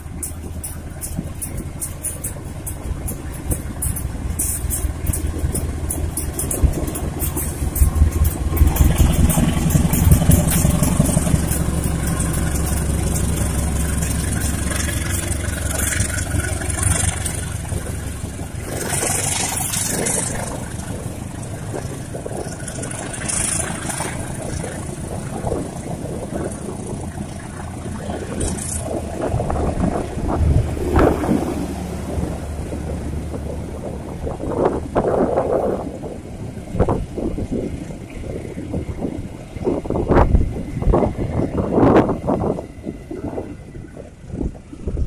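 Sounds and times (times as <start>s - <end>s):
hissing gusts: 0.0s - 45.0s
locomotive engine drone: 0.0s - 45.0s
train wheels rattling: 0.0s - 45.0s.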